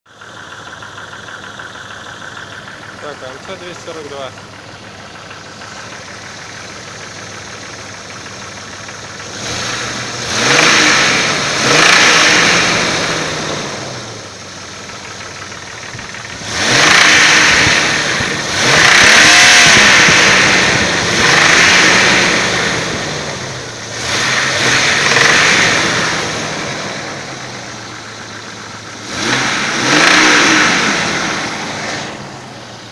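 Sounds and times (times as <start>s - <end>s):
engine idling and revving: 0.0s - 32.9s.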